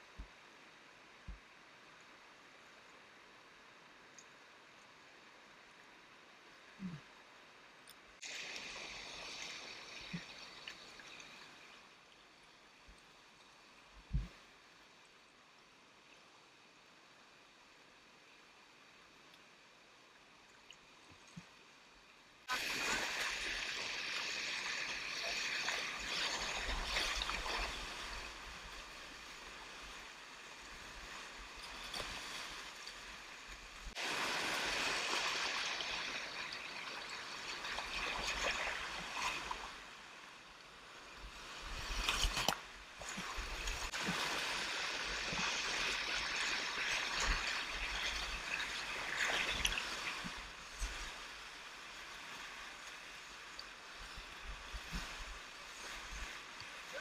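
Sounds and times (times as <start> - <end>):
sharp water splash: 22.5 - 28.3, 33.9 - 39.7, 41.8 - 50.4.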